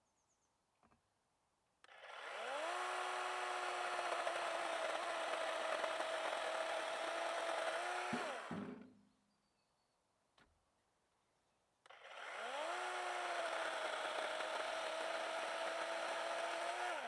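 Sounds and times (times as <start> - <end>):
chainsaw revving: 1.9 - 8.6, 11.9 - 17.0.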